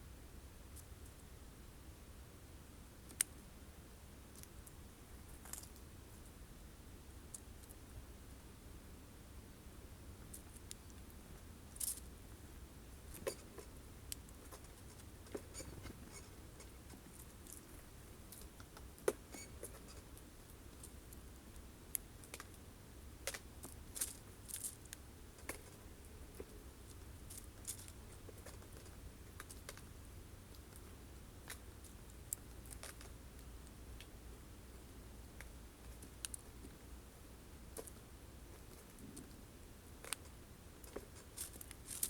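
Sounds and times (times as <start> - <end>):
birds pecking at seeds: 12.9 - 34.2, 37.6 - 42.0.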